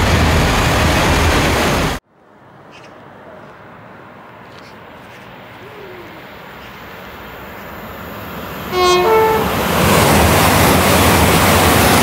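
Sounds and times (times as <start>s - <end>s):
train passing at speed: 0.0s - 12.0s
two-note train horn: 8.7s - 9.6s.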